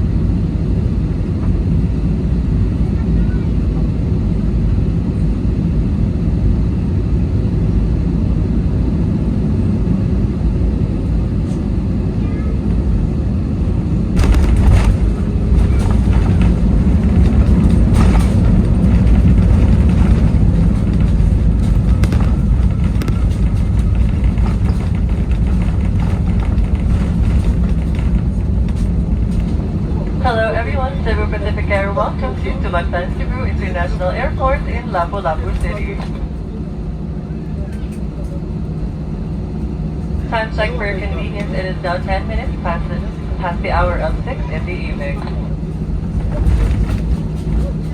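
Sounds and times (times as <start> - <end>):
airliner cabin rumble: 0.0 - 47.9
rattling crackles: 14.1 - 29.8.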